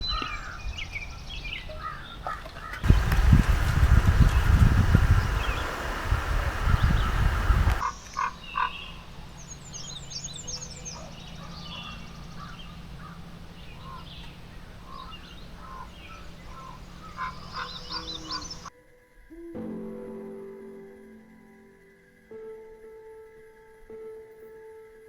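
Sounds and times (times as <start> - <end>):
birds chirping and calling: 0.0 - 18.7
frogs calling: 0.1 - 19.6.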